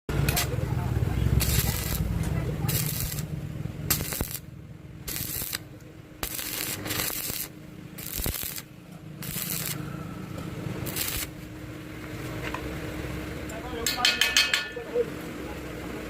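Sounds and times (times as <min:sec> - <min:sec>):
welding arc crackling and hissing: 0:00.1 - 0:12.2.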